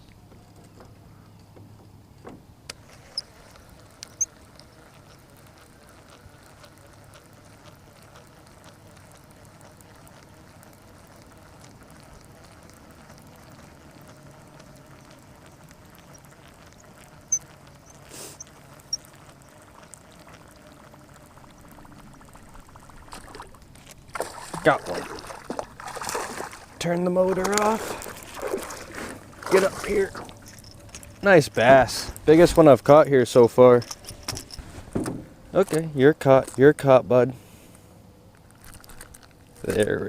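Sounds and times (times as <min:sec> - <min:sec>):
faint electric motor hum: 0:00.0 - 0:40.0.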